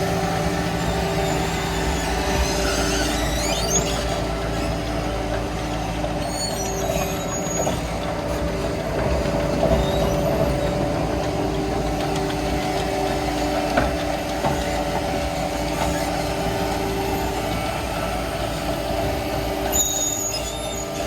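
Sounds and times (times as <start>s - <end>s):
diesel engine running: 0.0s - 21.0s
brief high squeal: 1.2s - 4.2s, 6.2s - 7.9s, 19.7s - 21.0s.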